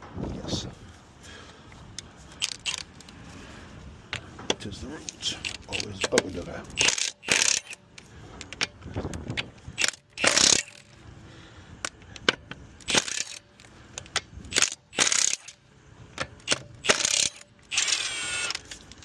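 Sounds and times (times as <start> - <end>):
ratchet wrench clicking: 5.2 - 8.7, 9.8 - 10.9, 12.2 - 15.6, 16.2 - 19.0.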